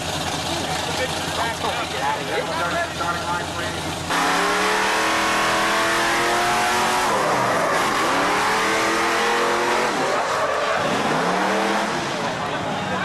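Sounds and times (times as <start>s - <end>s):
engine revving hard: 4.1s - 12.5s.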